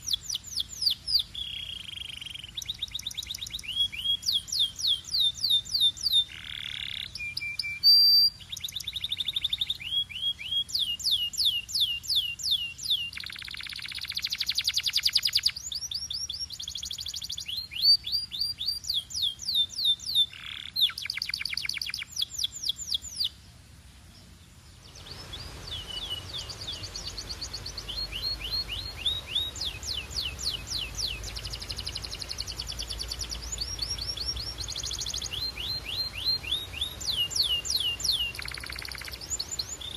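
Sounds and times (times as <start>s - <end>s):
canary singing trills: 0.0s - 23.4s, 24.2s - 39.9s
low steady hum: 22.0s - 39.9s.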